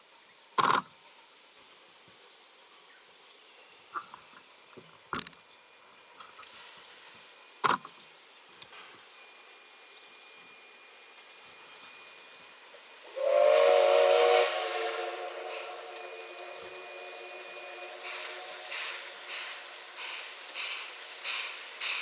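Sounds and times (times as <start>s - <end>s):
steam locomotive whistle: 11.6s - 22.0s.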